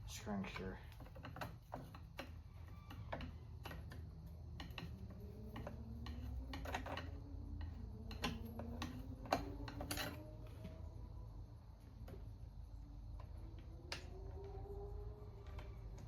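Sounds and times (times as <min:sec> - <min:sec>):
metal tool clicks and taps: 0:00.6 - 0:10.1
faint squeaks: 0:01.9 - 0:04.0.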